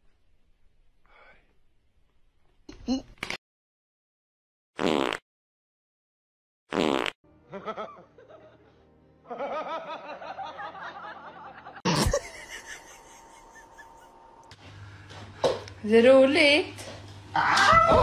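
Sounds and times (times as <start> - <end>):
laugh track: 7.4 - 14.4.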